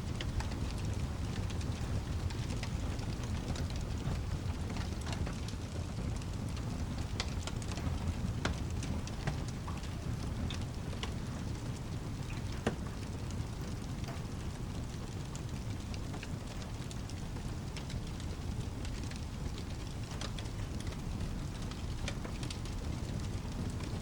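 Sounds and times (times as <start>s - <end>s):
low continuous rumble: 0.0s - 24.0s
sharp crackles and ticks: 0.0s - 24.0s
steady rain: 0.0s - 24.0s.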